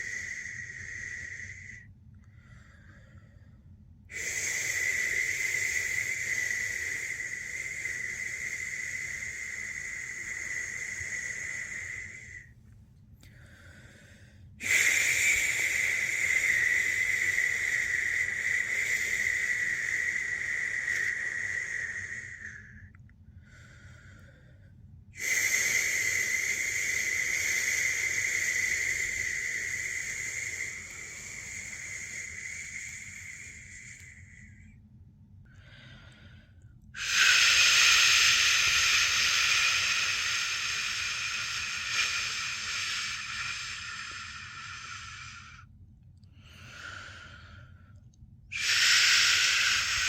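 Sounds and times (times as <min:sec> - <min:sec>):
person shushing: 0:37.0 - 0:45.6, 0:48.5 - 0:50.0.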